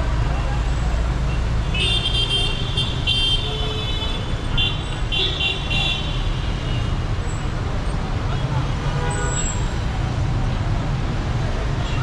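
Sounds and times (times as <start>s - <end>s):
engine and road noise: 0.0s - 12.0s.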